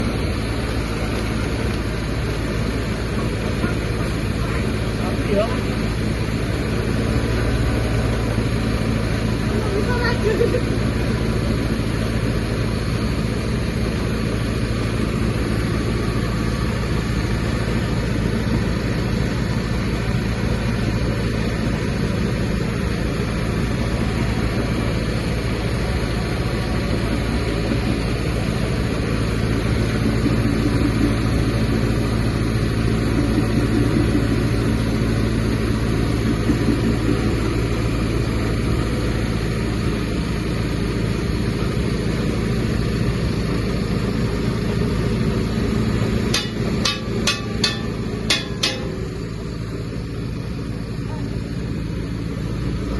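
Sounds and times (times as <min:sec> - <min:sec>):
machine mechanical drone: 0:00.0 - 0:52.9.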